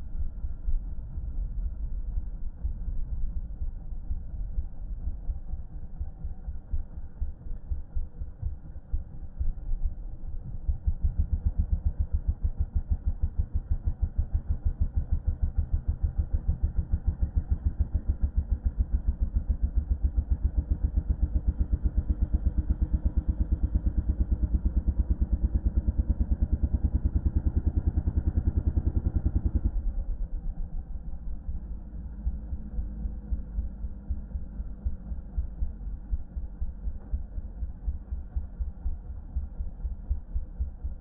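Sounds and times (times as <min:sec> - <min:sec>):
dirt bike engine running: 0:10.6 - 0:41.0.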